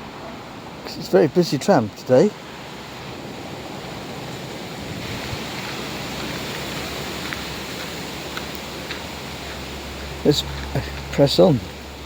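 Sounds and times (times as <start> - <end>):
wind on microphone: 2.8 - 11.1.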